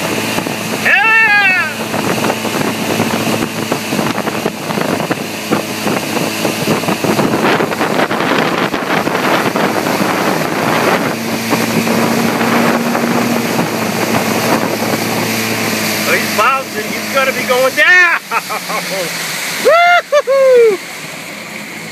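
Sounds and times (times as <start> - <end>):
wind buffeting microphone: 0.0 - 18.3
motorboat engine running: 0.0 - 21.9.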